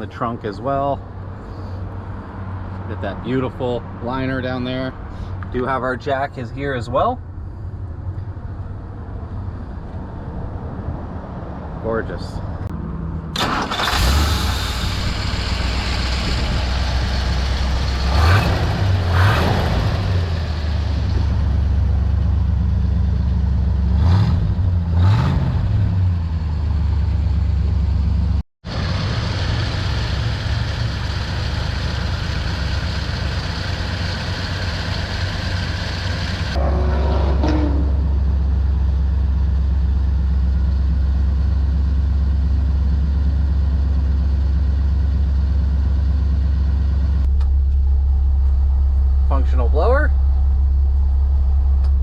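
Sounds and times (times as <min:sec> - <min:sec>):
car engine idling: 0:13.3 - 0:24.0, 0:26.2 - 0:36.8, 0:37.6 - 0:52.0
engine throttle blips: 0:46.1 - 0:52.0.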